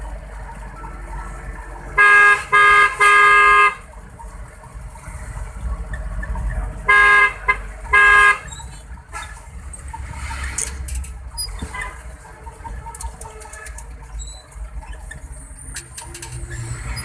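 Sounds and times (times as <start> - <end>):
low engine and road rumble: 0.0 - 17.0
vehicle horn honks: 2.0 - 3.8, 6.9 - 8.5.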